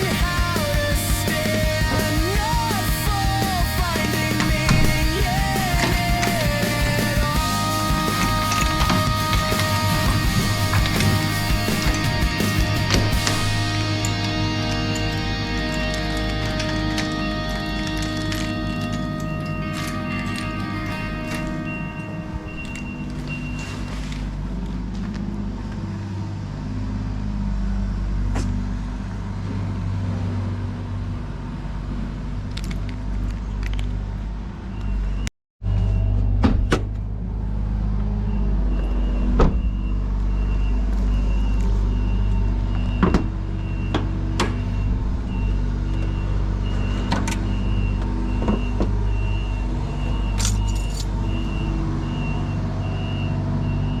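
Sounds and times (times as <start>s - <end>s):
car engine running: 0.0s - 23.5s.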